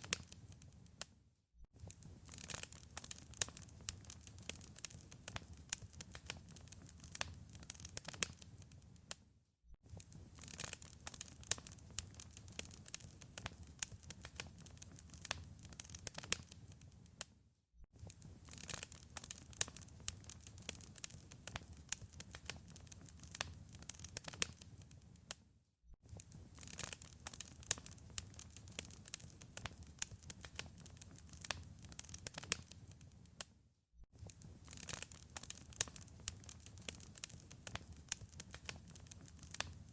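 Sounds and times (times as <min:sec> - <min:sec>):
fire snaps and pops: 0:00.0 - 0:09.2, 0:09.8 - 0:17.4, 0:18.0 - 0:25.4, 0:26.0 - 0:33.5, 0:34.1 - 0:39.9
low fire rumble: 0:34.3 - 0:39.9.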